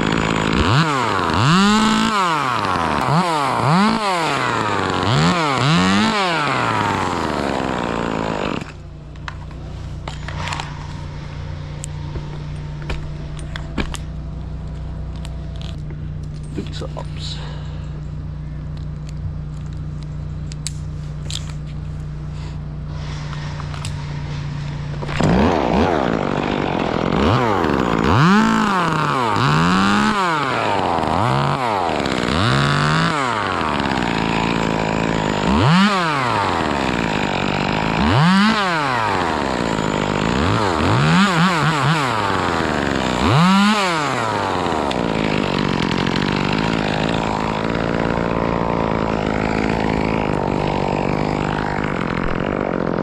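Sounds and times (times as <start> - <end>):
chainsaw idling and revving: 0.0 - 53.0.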